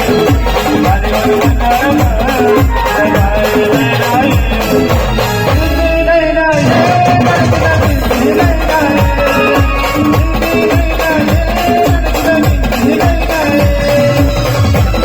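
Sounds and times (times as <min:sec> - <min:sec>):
bass drum beat: 0:00.0 - 0:15.0
brass band playing folk tune: 0:00.0 - 0:15.0
shaker-like percussion: 0:07.6 - 0:15.0.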